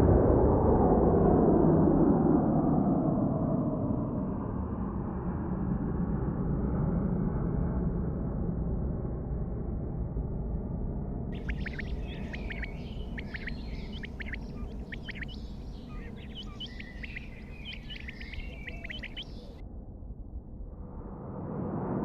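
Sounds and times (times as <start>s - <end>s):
bird chirps and calls: 11.4s - 19.6s
steady low rumble: 11.4s - 22.0s.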